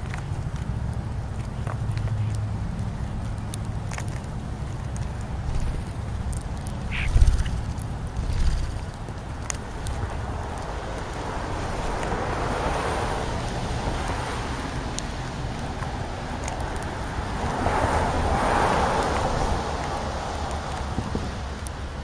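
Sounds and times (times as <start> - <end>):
outdoor rushing background noise: 0.0 - 22.0.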